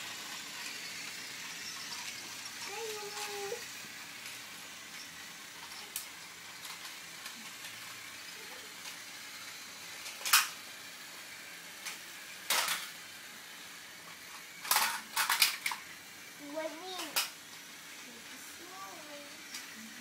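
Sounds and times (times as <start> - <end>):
room tone hiss: 0.0 - 20.0.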